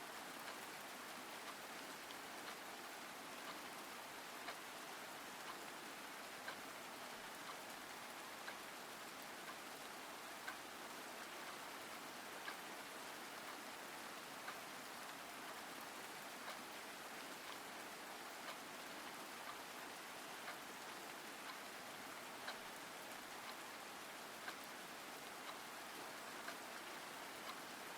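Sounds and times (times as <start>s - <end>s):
rain falling: 0.1s - 27.9s
light ticking: 12.4s - 12.7s, 25.3s - 27.8s.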